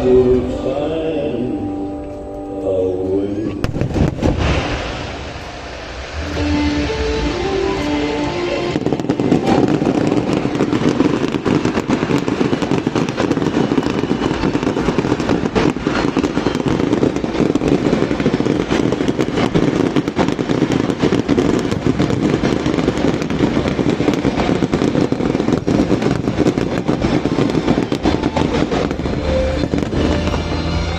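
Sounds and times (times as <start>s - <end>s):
fireworks bangs and crackles: 3.6s - 30.9s.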